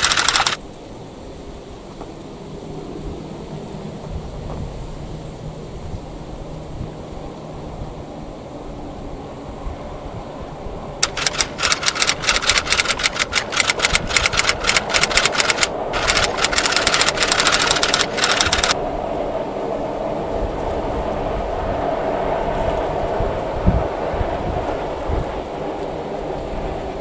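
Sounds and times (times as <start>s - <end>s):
train rumble: 0.0s - 0.6s, 1.4s - 27.0s
train wheels clattering: 11.0s - 18.8s.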